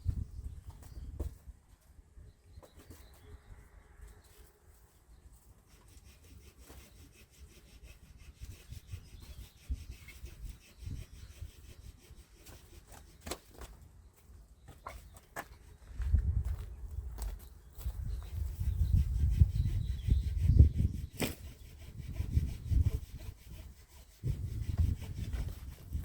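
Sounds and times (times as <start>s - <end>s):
wooden boards scraping: 18.2s - 26.0s.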